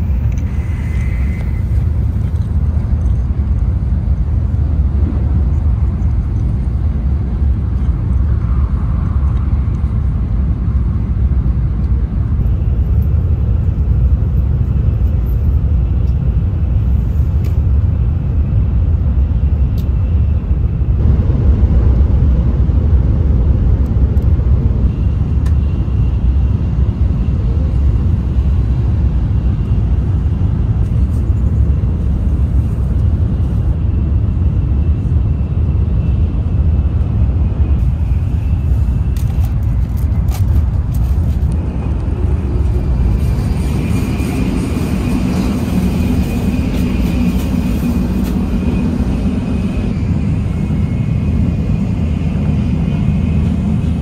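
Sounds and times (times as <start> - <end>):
faint high whine: 0.0 - 3.3, 41.5 - 54.0
train running rumble: 0.0 - 54.0.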